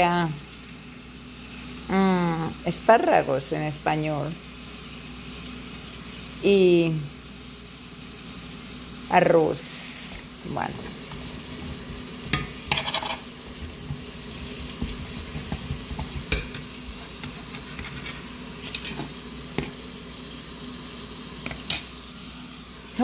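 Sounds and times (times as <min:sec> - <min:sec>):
food sizzling in frying pans: 0:00.0 - 0:23.0
metal spoon scraping pan: 0:11.0 - 0:14.0, 0:14.7 - 0:19.2.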